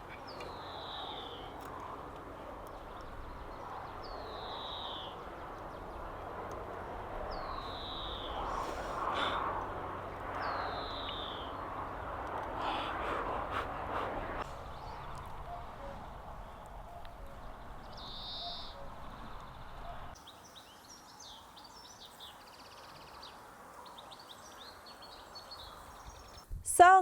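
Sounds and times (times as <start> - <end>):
bird whistled call: 18.0 - 18.9.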